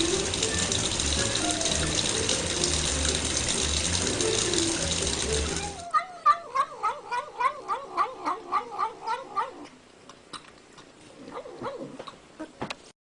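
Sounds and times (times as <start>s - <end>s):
cat calling: 5.6s - 9.7s.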